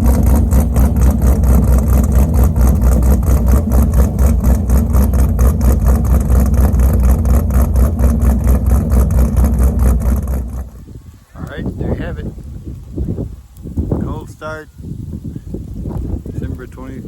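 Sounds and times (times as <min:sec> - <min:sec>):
car engine idling with lope: 0:00.0 - 0:12.4.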